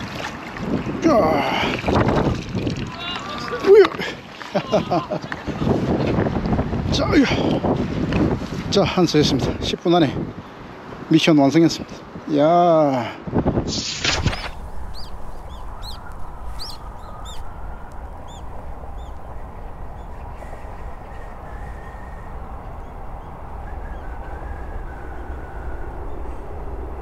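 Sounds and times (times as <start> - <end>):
short high bird chirps: 14.2 - 17.7
low background rumble: 14.4 - 27.0.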